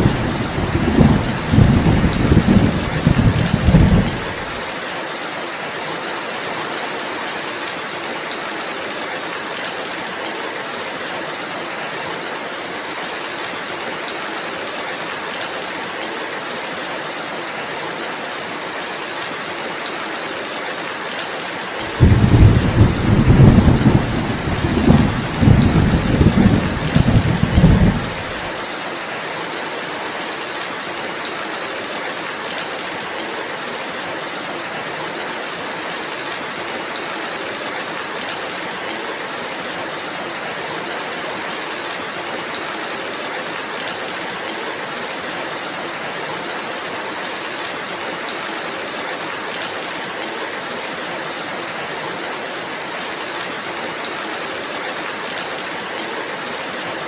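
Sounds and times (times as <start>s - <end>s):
thunder rumbling: 0.0s - 4.5s, 21.9s - 28.5s
steady rainfall: 0.0s - 57.0s.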